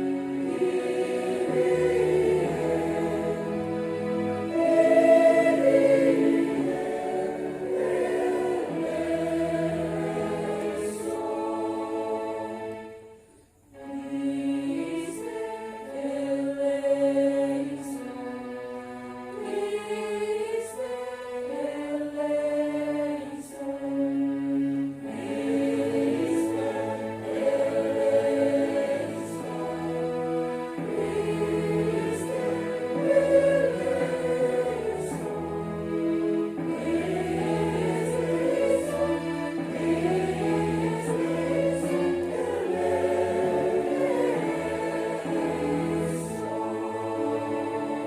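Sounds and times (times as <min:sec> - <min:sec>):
church choir singing: 0:00.0 - 0:48.0.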